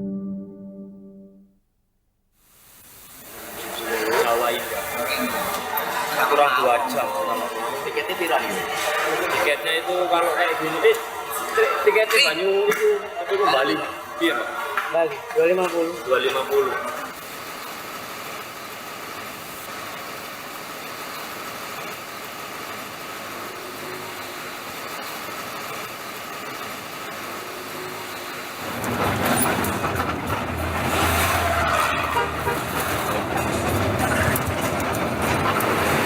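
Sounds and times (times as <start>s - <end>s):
road vehicle hum: 25.6s - 36.0s
large vehicle engine rumble: 28.6s - 36.0s.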